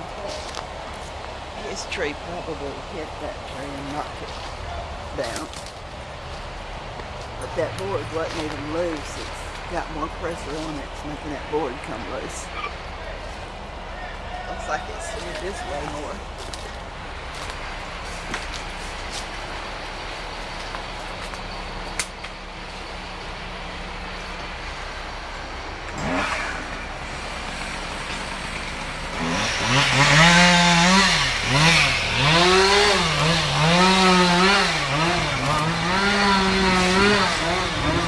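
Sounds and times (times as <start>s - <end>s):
chainsaw engine revving: 25.9s - 38.0s.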